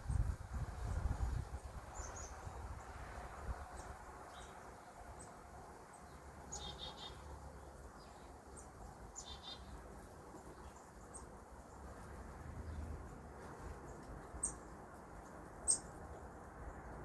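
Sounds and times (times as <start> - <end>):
small songbirds chirping: 0.0 - 17.0.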